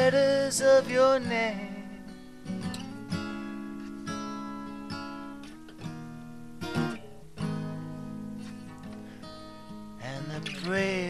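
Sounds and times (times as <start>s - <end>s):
acoustic guitar strumming: 0.0s - 11.0s
person singing: 10.0s - 11.0s.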